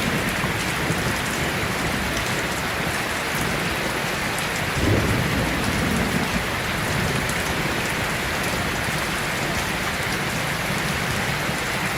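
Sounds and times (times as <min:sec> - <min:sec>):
heavy rain pouring: 0:00.0 - 0:11.9
low rumble of thunder: 0:04.6 - 0:11.7.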